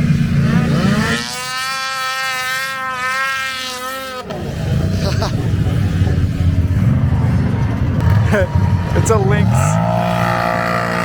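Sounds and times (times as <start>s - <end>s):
small engine high buzzing whine: 0.0s - 5.0s, 7.4s - 11.0s.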